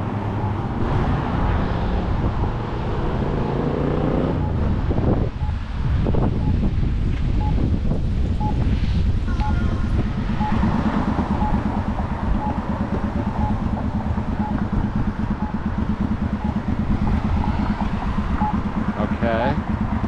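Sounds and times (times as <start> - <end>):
road traffic passing: 0.0 - 20.0
short electronic beeps: 0.3 - 0.7, 4.3 - 4.7, 6.4 - 6.6, 7.4 - 7.6, 8.4 - 8.6, 9.3 - 15.7, 16.3 - 18.7.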